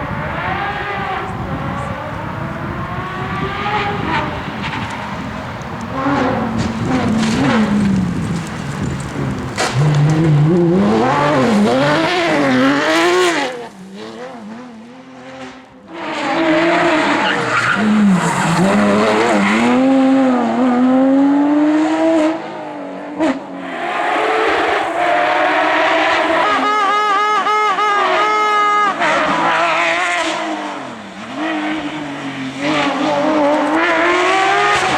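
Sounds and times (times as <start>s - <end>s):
car engine revving hard: 23.6s - 34.9s.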